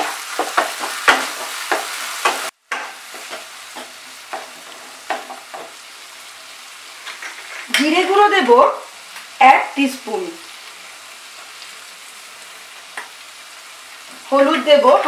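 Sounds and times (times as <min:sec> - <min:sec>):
spatula scraping wok: 0:00.0 - 0:05.9, 0:06.8 - 0:08.0
paste sizzling in oil: 0:00.0 - 0:15.0.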